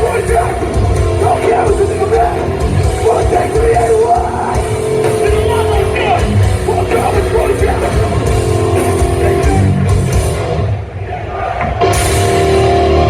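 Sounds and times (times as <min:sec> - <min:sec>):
shouted vocals: 0:00.0 - 0:08.2
punk band playing live: 0:00.0 - 0:13.0.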